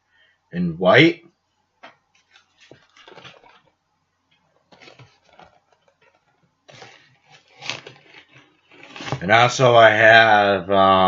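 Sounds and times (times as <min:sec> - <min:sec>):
plastic packaging rustling: 0:02.2 - 0:09.3.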